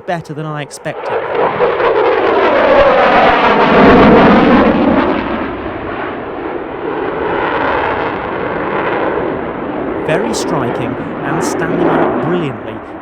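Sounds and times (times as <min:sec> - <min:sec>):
jet fighter flying past: 0:01.0 - 0:10.2.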